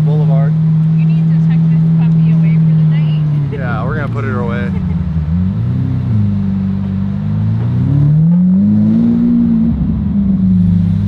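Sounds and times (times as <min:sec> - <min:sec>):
car engine low drone: 0:00.0 - 0:11.0.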